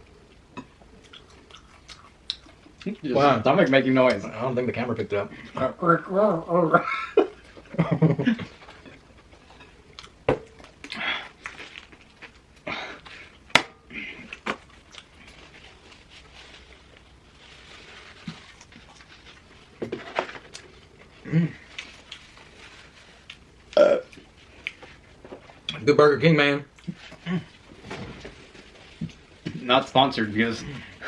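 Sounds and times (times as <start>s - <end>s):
chewing and mouth smacks: 0.1s - 3.0s, 8.6s - 13.2s, 14.2s - 15.6s, 23.1s - 25.0s
short rustles: 27.0s - 29.4s.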